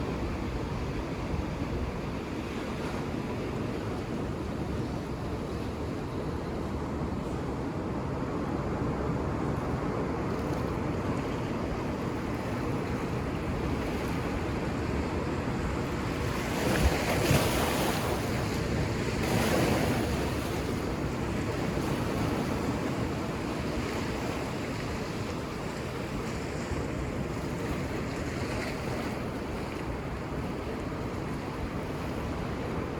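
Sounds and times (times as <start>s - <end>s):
ocean waves washing on beach: 0.0s - 32.9s
waves breaking: 8.8s - 32.9s.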